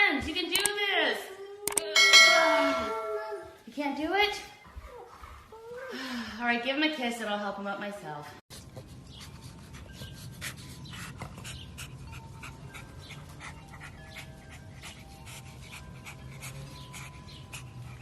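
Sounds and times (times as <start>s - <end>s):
dog panting: 8.5s - 18.0s.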